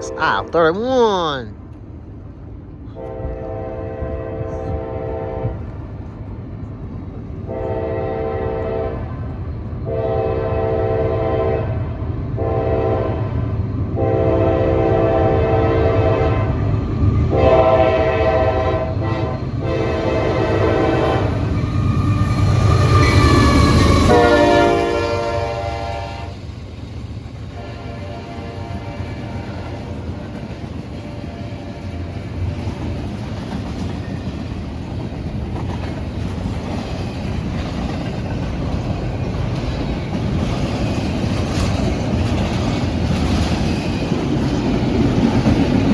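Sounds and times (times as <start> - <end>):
locomotive air horn blasts: 0.0 - 0.6, 3.0 - 5.7, 7.5 - 9.0, 9.9 - 11.8, 12.4 - 13.3, 14.0 - 16.6, 17.3 - 21.4, 24.0 - 26.3, 27.6 - 30.0
train engine and wheels rumble: 0.0 - 45.9.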